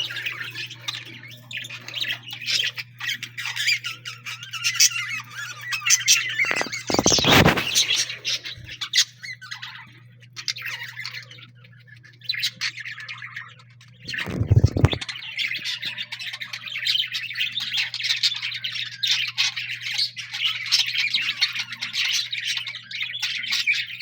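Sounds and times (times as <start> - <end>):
birds squawking and chattering: 0.0 - 24.0
steady low hum: 14.1 - 15.0.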